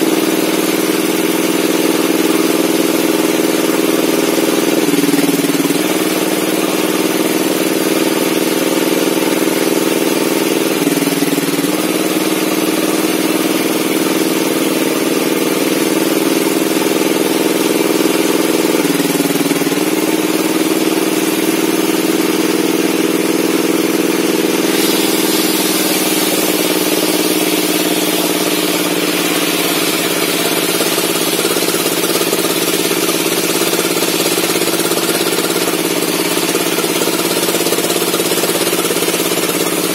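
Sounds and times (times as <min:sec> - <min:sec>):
circular saw cutting wood: 0:00.0 - 0:39.9.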